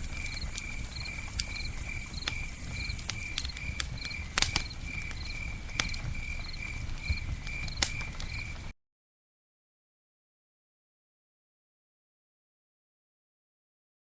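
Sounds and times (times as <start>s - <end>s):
campfire crackling and popping: 0.0s - 8.7s
cricket chirping: 0.0s - 8.7s.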